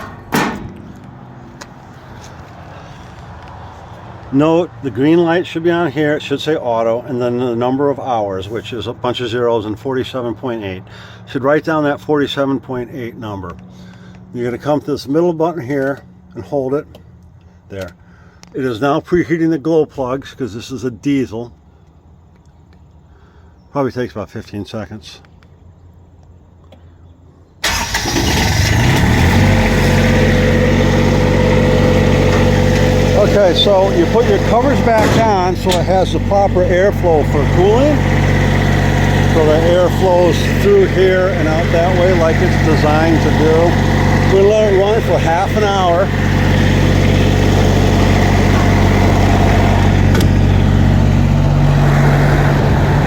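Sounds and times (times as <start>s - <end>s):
diesel generator engine starting: 27.6s - 53.0s.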